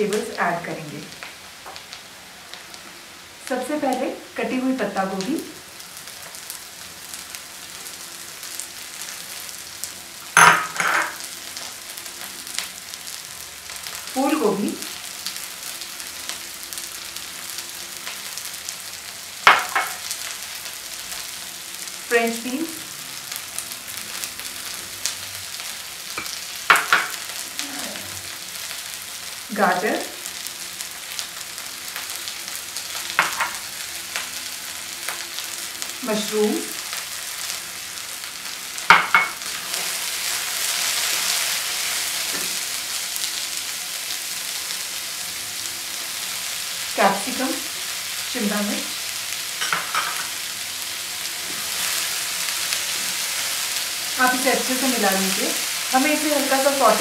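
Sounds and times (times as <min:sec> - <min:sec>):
vegetables sizzling in a wok: 0:00.0 - 0:57.0.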